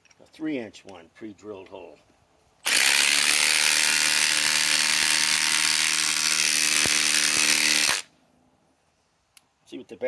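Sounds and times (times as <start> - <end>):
impact driver hammering: 2.7 - 8.1.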